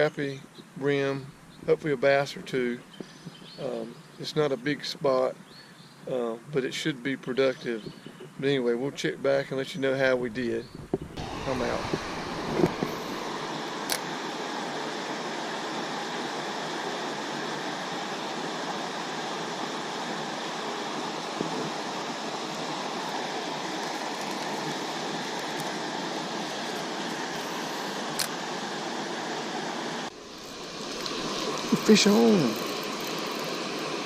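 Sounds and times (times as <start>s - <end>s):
water rushing over spillway: 11.2s - 34.0s.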